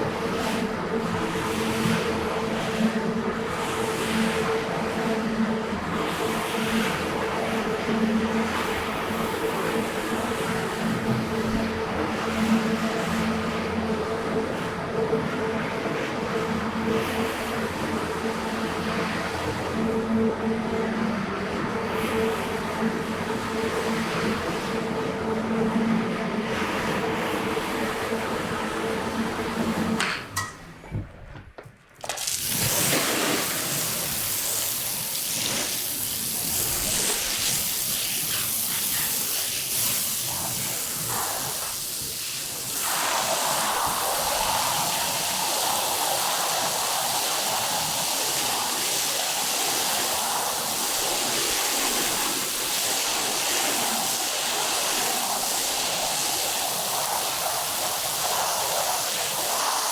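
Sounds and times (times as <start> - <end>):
water spraying onto carpet: 32.0 - 59.9.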